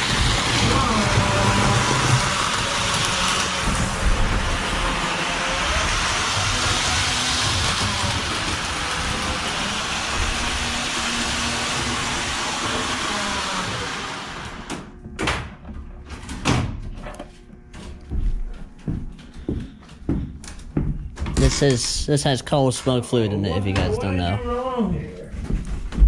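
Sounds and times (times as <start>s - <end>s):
model train rumble: 0.0s - 14.7s.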